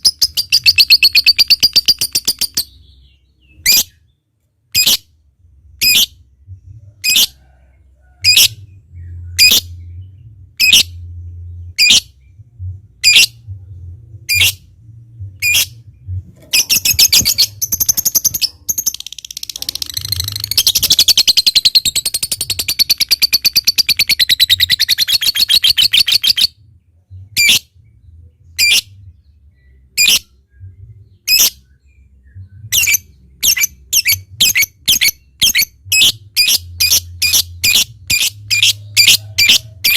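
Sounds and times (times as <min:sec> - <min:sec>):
lovebird chirping and trilling: 0:00.0 - 0:04.1, 0:04.7 - 0:05.1, 0:05.8 - 0:06.2, 0:08.2 - 0:09.9, 0:10.6 - 0:12.3, 0:13.0 - 0:13.5, 0:14.3 - 0:14.7, 0:15.4 - 0:15.8, 0:16.4 - 0:26.6, 0:27.2 - 0:27.7, 0:28.6 - 0:29.0, 0:29.9 - 0:30.4, 0:31.2 - 0:31.7, 0:32.4 - 0:39.9
faint low hum: 0:00.0 - 0:39.9.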